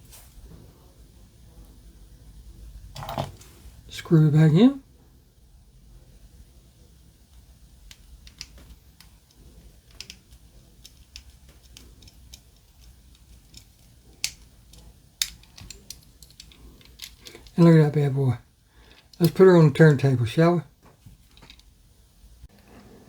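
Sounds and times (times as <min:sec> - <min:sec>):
light clicks of small parts: 0:07.3 - 0:17.6, 0:20.8 - 0:21.7.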